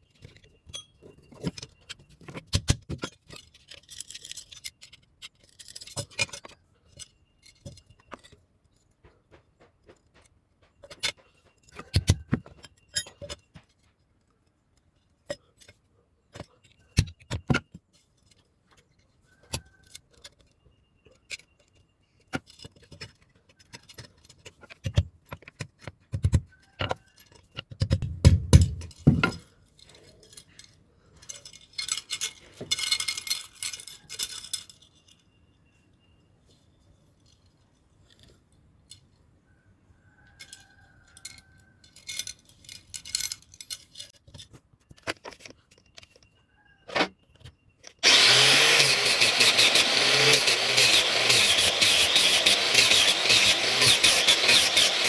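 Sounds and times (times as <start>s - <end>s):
hissing metal scraping: 48.0s - 55.0s.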